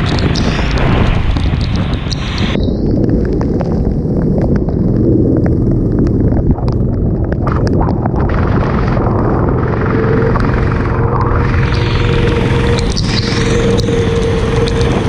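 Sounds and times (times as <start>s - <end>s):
short crackles: 0.0s - 15.0s
wind buffeting microphone: 0.0s - 15.0s
go-kart engine running: 9.1s - 15.0s.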